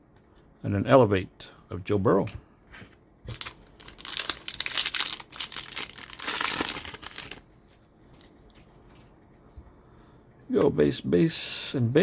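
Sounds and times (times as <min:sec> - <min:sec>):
plastic foil wrapper crinkling: 0:03.3 - 0:08.3.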